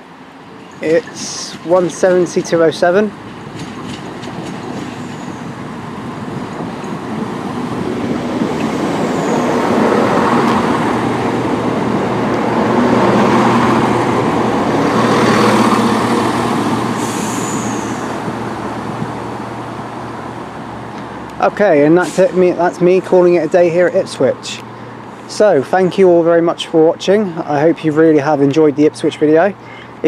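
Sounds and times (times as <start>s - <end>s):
diesel train pulling away: 0.0s - 26.4s
faint high squeal: 17.0s - 18.1s.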